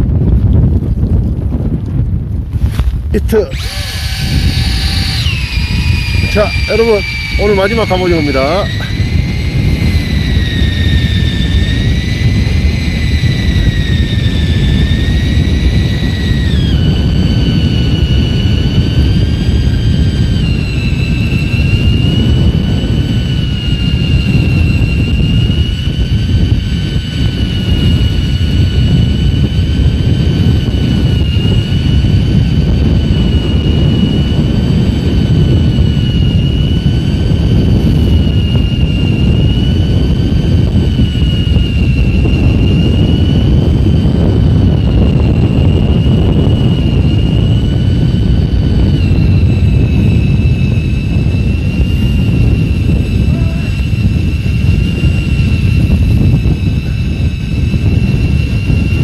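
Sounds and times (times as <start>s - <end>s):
boat engine rumble: 0.0s - 59.0s
high mechanical whine: 0.0s - 59.0s
wind: 0.0s - 59.0s.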